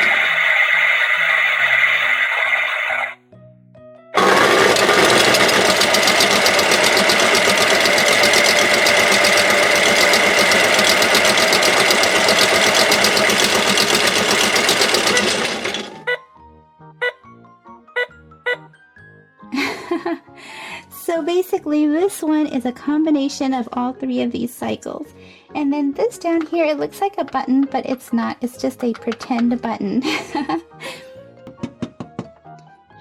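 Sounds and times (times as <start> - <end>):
buzzing toy machine noise: 0.0 - 3.2, 4.2 - 16.2
tune of beeping notes: 16.0 - 16.2, 18.0 - 18.6.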